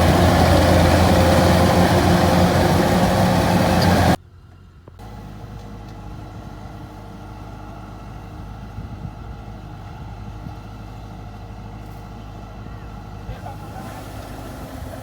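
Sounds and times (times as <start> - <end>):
farm machine engine running: 0.0 - 4.2, 9.5 - 15.0
loud engine cutting off: 0.0 - 4.2, 13.3 - 15.0.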